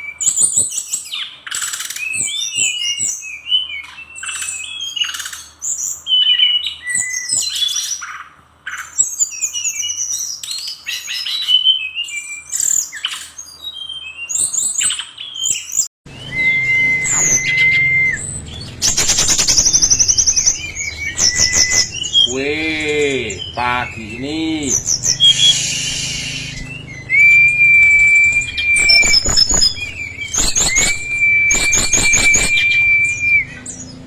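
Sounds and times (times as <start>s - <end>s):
bird singing chirps and trills: 8.8s - 34.0s
bird whistle: 10.9s - 34.0s
rapid rattling trill: 16.1s - 33.7s.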